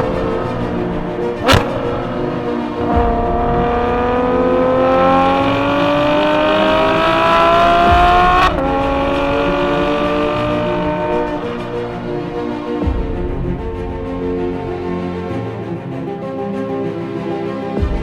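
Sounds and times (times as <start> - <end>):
car engine revving: 0.0 - 13.5
background music: 0.0 - 18.0.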